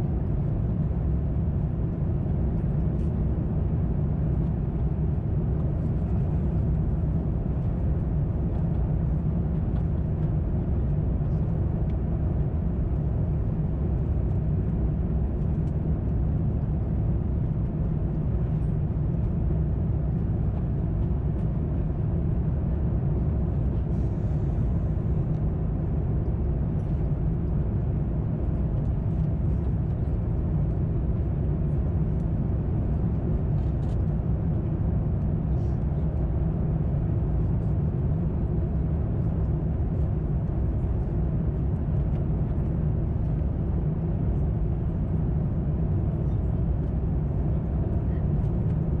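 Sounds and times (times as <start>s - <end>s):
aircraft cabin engine rumble: 0.0s - 49.0s.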